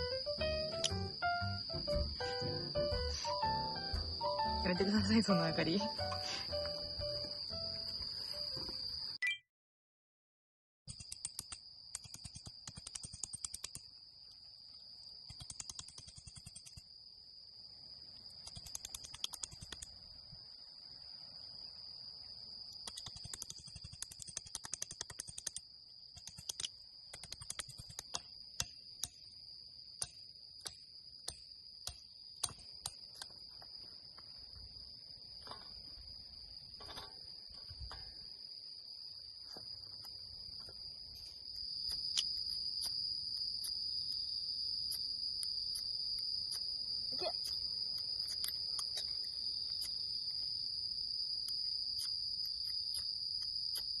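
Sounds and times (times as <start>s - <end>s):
insects chirring: 0.0s - 9.2s, 10.9s - 54.0s
sharp clicks and taps: 0.7s - 1.1s, 2.8s - 4.6s, 26.2s - 29.2s.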